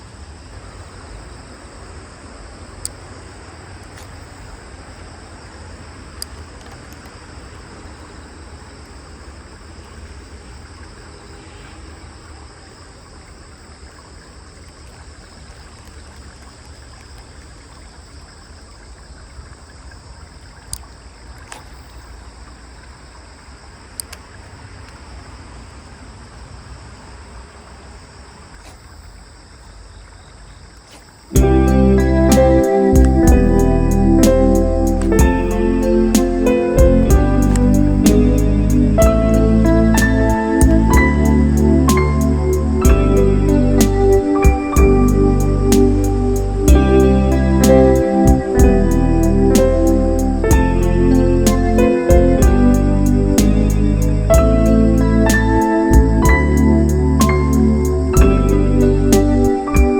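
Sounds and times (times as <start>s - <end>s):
thin high whine: 31.4s - 59.9s
wind rumble: 31.4s - 59.9s.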